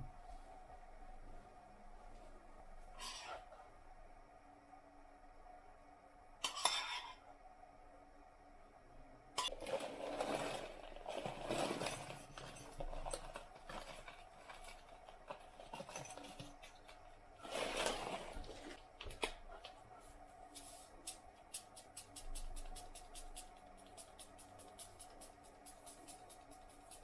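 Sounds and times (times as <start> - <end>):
scraping and rustling: 9.5 - 21.0.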